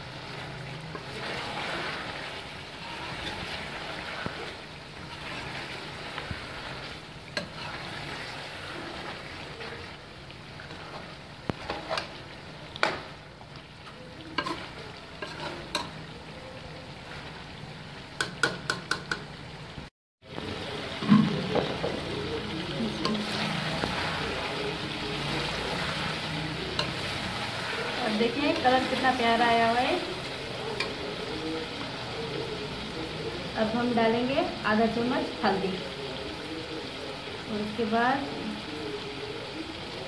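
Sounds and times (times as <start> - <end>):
food sizzling in a pot: 0.0 - 40.0
metal ladle scraping a pot: 0.9 - 10.0, 10.6 - 13.0, 13.8 - 16.0
ladle tapping on a pot: 18.2 - 19.3.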